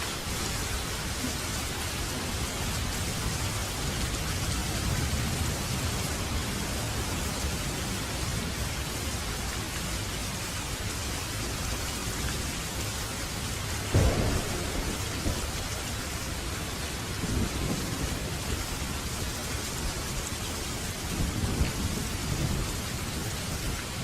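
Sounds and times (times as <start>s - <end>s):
steady rain falling: 0.0s - 24.0s
thunder clap and rumbles: 13.9s - 24.0s.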